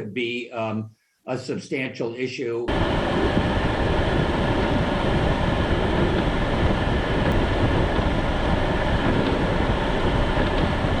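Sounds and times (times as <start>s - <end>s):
storm wind buffeting microphone: 2.7s - 11.0s.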